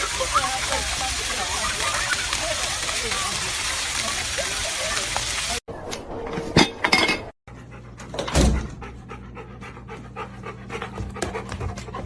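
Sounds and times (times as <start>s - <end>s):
dog panting: 7.5s - 12.0s.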